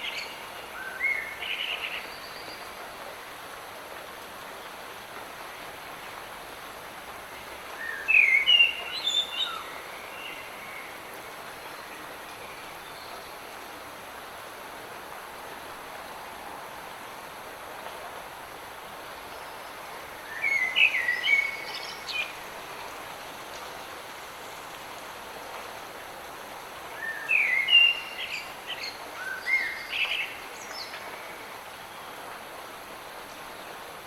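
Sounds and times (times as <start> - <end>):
light rain hissing: 0.0 - 34.0.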